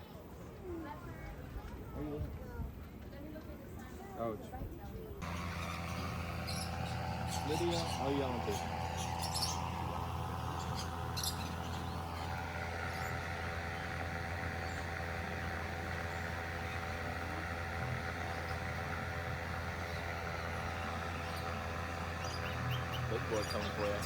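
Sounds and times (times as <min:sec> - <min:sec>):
low hum: 0:05.2 - 0:24.0.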